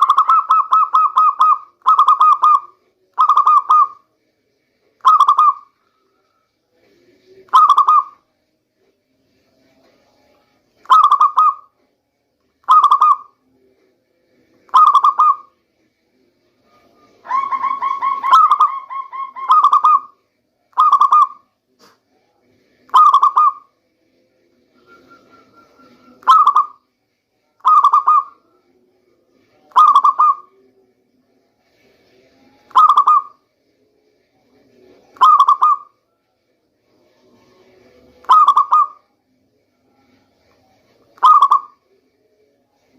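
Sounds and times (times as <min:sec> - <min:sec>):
dove cooing: 0:00.0 - 0:04.0, 0:05.0 - 0:05.7, 0:07.5 - 0:08.2, 0:10.8 - 0:11.7, 0:12.7 - 0:13.3, 0:14.7 - 0:15.5, 0:17.2 - 0:21.4, 0:22.9 - 0:23.7, 0:25.3 - 0:26.8, 0:27.6 - 0:28.4, 0:29.7 - 0:30.6, 0:32.7 - 0:33.4, 0:35.2 - 0:35.9, 0:38.2 - 0:39.0, 0:41.2 - 0:41.8.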